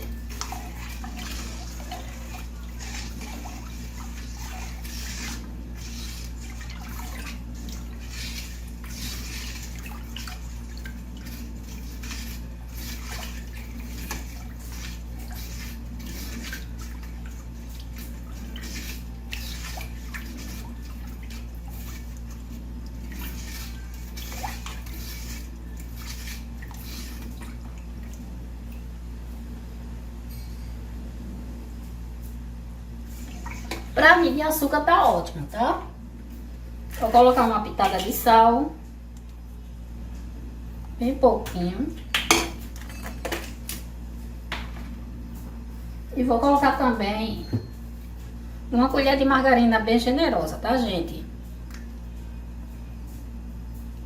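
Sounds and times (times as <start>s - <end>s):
liquid sloshing in a bowl: 0.0s - 29.4s, 33.0s - 35.5s, 36.2s - 39.5s
steady low hum: 0.0s - 54.0s.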